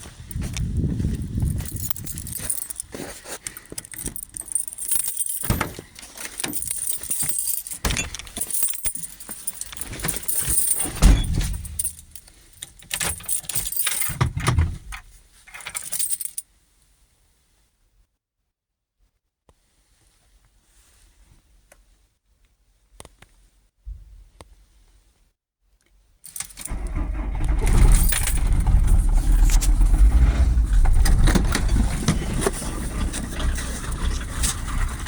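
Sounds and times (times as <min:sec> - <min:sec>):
keys jangling: 0:00.3 - 0:16.4, 0:26.3 - 0:34.8.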